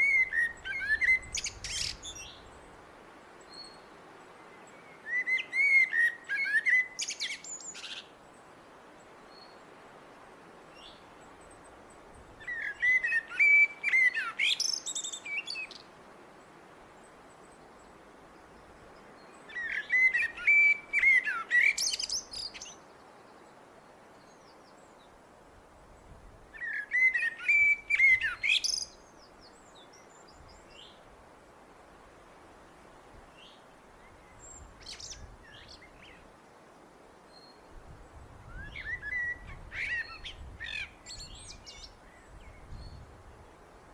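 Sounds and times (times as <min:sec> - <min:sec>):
blackbird singing: 0:00.0 - 0:02.5, 0:04.7 - 0:08.1, 0:12.4 - 0:15.8, 0:19.5 - 0:22.8, 0:26.6 - 0:29.1, 0:38.5 - 0:43.0.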